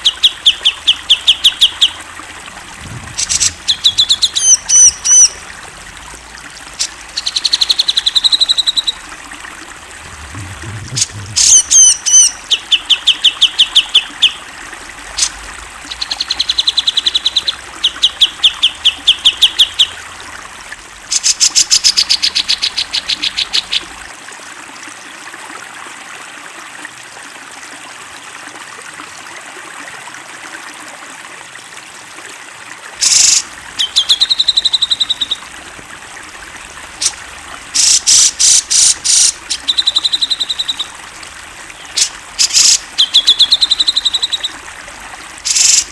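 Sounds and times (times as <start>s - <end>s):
bird chattering calls: 0.0s - 6.0s, 6.6s - 9.2s, 10.0s - 14.4s, 15.2s - 20.0s, 33.0s - 45.9s
trickle of running water: 0.0s - 45.9s.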